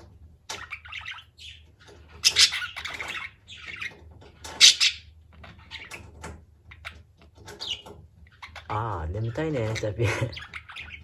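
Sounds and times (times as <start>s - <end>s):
budgerigars chattering and squawking: 0.5s - 11.0s.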